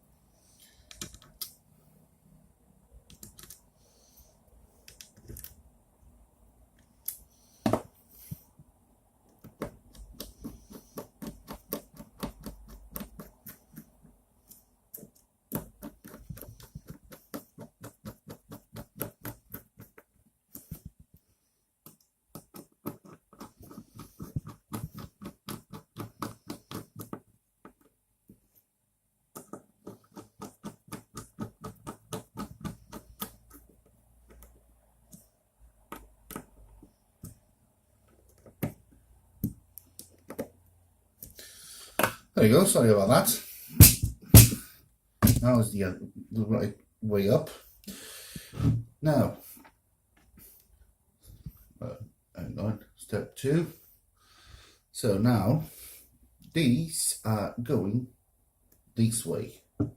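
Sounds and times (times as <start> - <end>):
small clicks of screws and nuts: 0.8 - 1.6, 4.8 - 5.6
knock of parts: 43.8 - 45.4.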